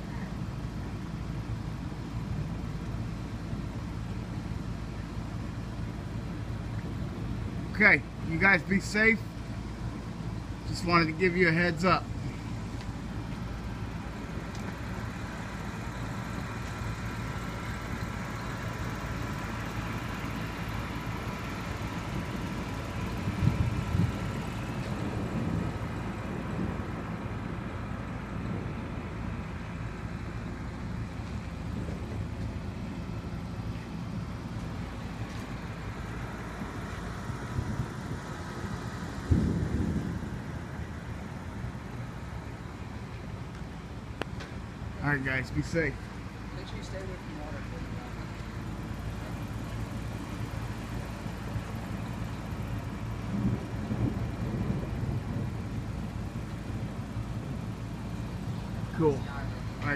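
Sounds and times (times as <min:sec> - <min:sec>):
storm noise: 0:39.1 - 0:41.4, 0:52.7 - 0:58.8
thunder rumbling: 0:53.1 - 0:57.7.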